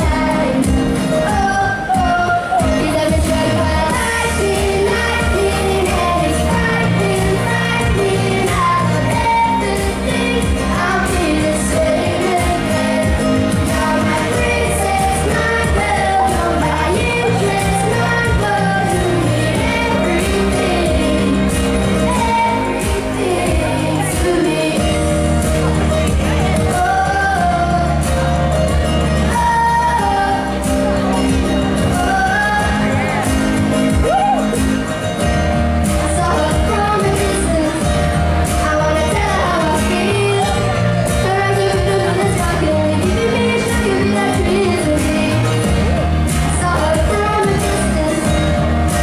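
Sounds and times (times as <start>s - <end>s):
person singing: 0.0s - 49.0s
pop song accompaniment with bass: 0.0s - 49.0s.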